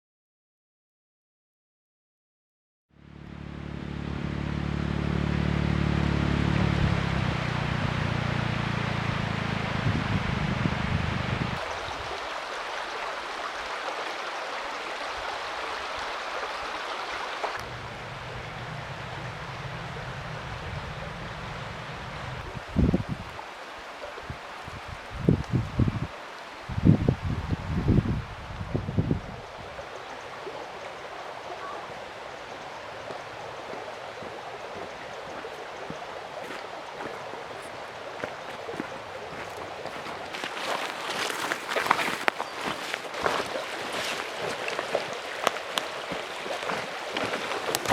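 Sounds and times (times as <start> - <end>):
low hum: 3.0 - 11.7, 17.6 - 23.4
stream rushing: 3.0 - 47.9.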